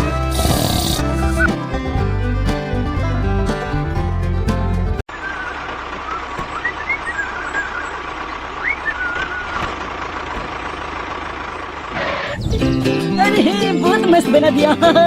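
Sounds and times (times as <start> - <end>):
vehicle engine humming: 0.0 - 15.0
birds chirping: 5.1 - 13.7.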